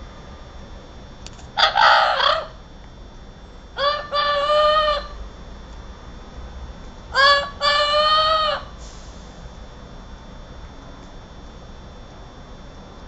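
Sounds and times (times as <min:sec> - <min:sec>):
parrot squawking: 0:01.6 - 0:02.6, 0:03.8 - 0:05.2, 0:07.2 - 0:08.7.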